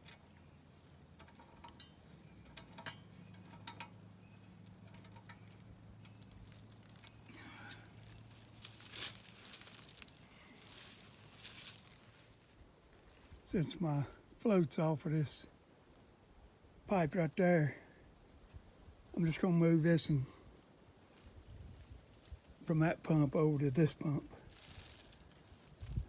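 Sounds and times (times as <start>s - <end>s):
scraping rustles: 2.4s - 13.3s.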